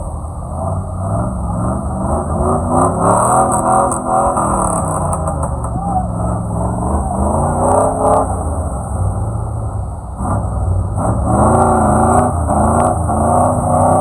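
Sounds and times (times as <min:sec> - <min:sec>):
steady low rumble: 0:00.0 - 0:11.3
vehicle engine revving: 0:00.0 - 0:14.0
voices: 0:02.7 - 0:10.1.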